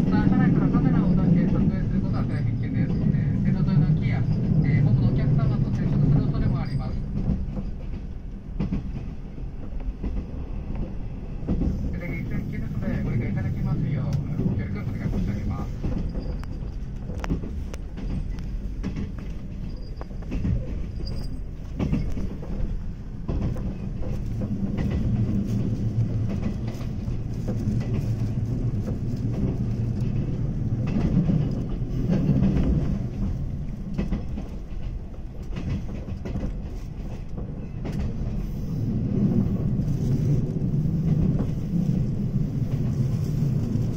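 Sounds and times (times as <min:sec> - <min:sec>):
train running gear rumble: 0:00.0 - 0:43.9
wheels clicking over rail joints: 0:14.2 - 0:43.9.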